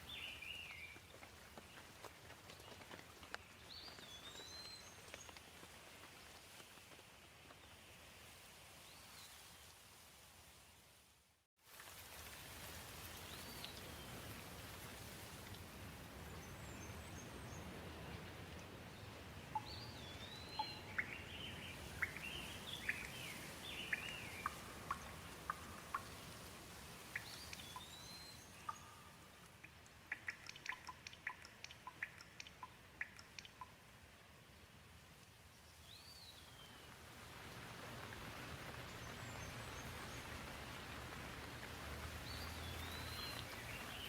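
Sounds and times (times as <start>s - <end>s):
small birds chirping: 0.0s - 5.6s, 19.0s - 33.8s, 42.1s - 44.0s
light rain hissing: 0.0s - 44.0s
sharp dripping ticks: 19.5s - 33.9s.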